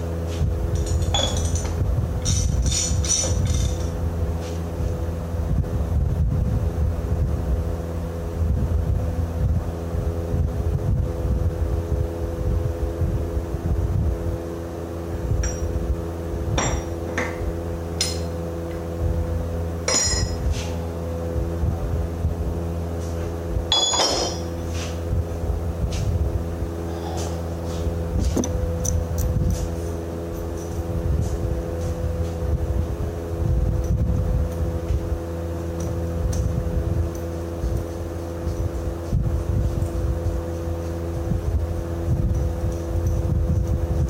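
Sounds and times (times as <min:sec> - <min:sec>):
engine running: 0:00.0 - 0:44.0
hand tools striking metal: 0:00.8 - 0:04.0, 0:15.4 - 0:15.8, 0:16.6 - 0:17.4, 0:18.0 - 0:18.4, 0:19.8 - 0:20.5, 0:23.7 - 0:24.9.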